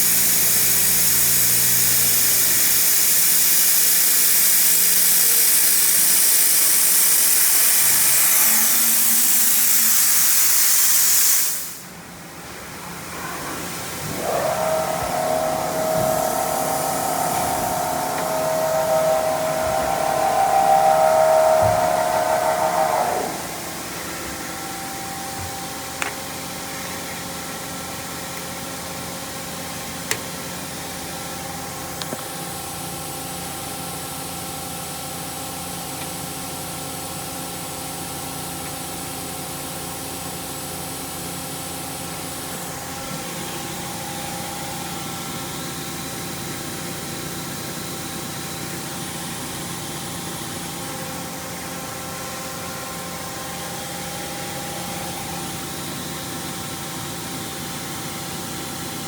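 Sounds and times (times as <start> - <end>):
high hiss: 13.8 - 25.0
milling machine humming: 13.9 - 24.5.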